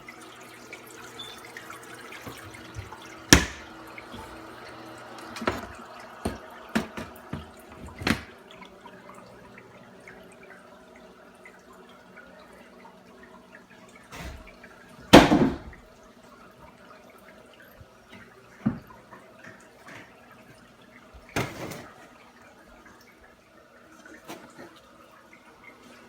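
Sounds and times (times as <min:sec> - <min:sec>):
small waterfall trickling and dripping: 0:00.0 - 0:26.0
sudden knocks or splashes: 0:02.6 - 0:04.3, 0:15.1 - 0:15.8.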